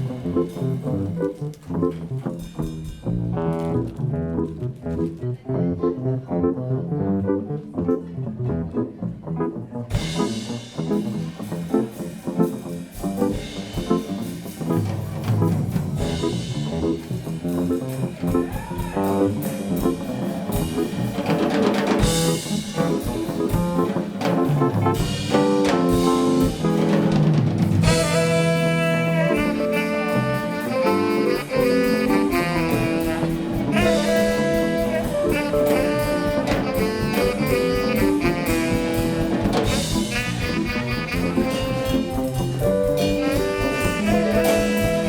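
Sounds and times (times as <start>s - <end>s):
jazz band playing: 0.0s - 45.0s
sustained horn notes: 22.1s - 45.0s.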